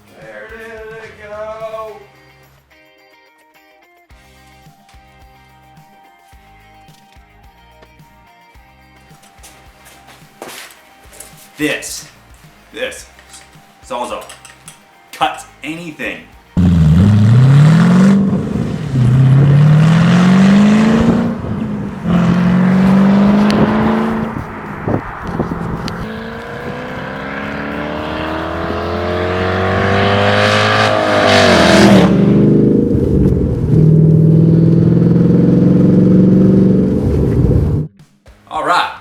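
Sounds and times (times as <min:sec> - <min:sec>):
car engine revving loudly: 0:16.6 - 0:37.9.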